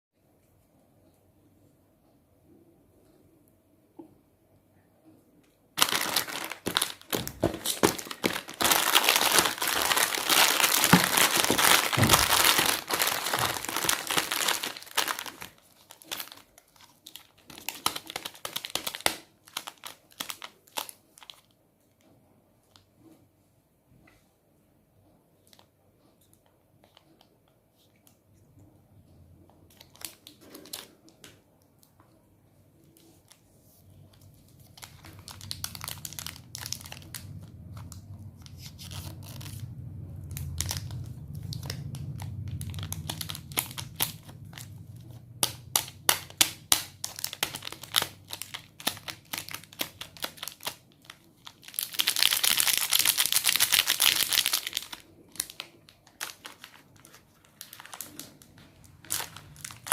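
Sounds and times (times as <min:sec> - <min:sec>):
wrapper tearing: 0:05.8 - 0:21.5, 0:34.6 - 0:59.9
wrapper crinkling and crackling: 0:05.8 - 0:21.6, 0:29.7 - 0:31.4, 0:32.8 - 0:59.9.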